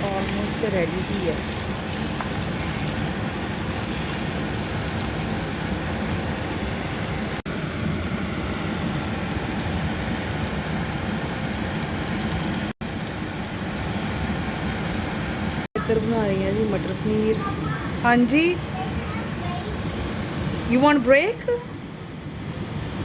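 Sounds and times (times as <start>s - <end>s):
food sizzling in a pan: 0.0s - 15.7s.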